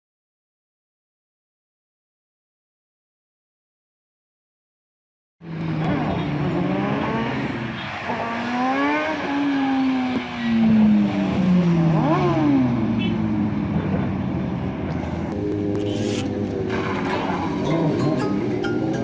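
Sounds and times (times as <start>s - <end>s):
motorcycle engines revving: 5.4s - 19.0s.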